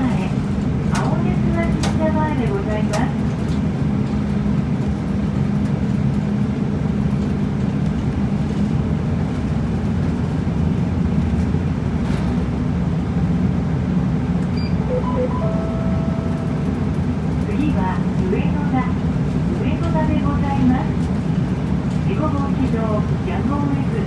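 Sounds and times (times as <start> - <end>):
bus engine and road noise: 0.0 - 24.0
short electronic beeps: 14.6 - 16.6.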